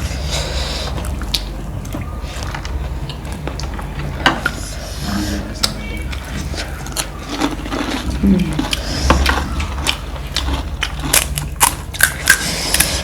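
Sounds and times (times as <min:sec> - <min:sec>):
low hum: 0:00.0 - 0:13.0
crisp eating crunches: 0:05.6 - 0:13.0.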